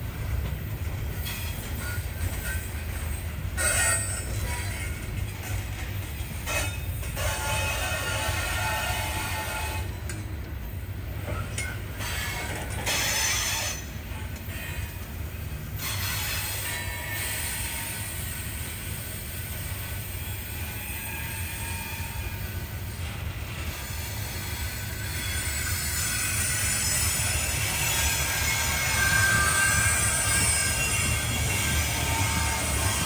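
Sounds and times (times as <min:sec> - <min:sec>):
freight train wheels rumbling: 0:00.0 - 0:33.0
wheel squeal: 0:23.9 - 0:33.0.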